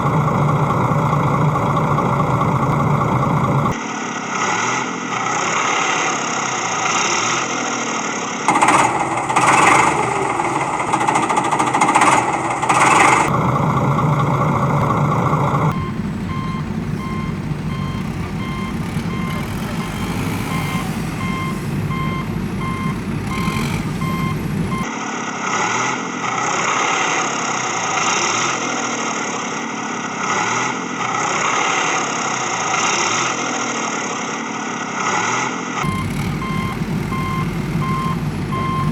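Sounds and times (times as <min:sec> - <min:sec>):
heavy vehicle engines running: 0:00.0 - 0:03.8, 0:08.5 - 0:24.9, 0:35.8 - 0:38.9
reversing alarm beeping: 0:08.5 - 0:13.3, 0:15.7 - 0:24.9, 0:35.8 - 0:38.9.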